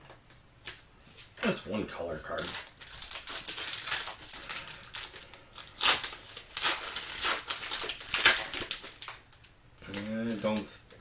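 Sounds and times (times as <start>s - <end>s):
card packaging crinkling: 2.2s - 11.0s.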